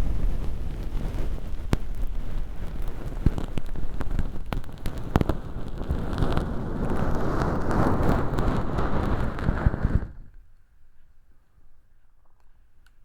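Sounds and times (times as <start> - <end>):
plastic film crackling and rustling: 0.0 - 10.3.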